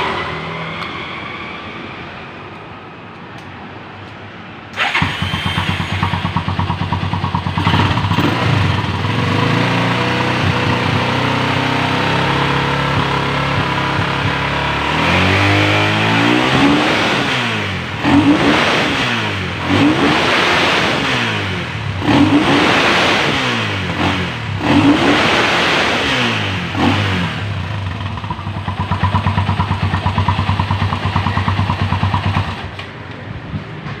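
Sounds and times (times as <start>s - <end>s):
motorcycle engine revving and idling: 4.8s - 32.8s.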